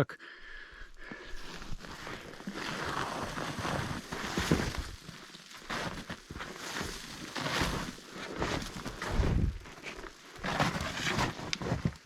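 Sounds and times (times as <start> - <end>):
footsteps on rough woodland ground: 0.7 - 12.0
rustling underfoot: 0.9 - 12.0.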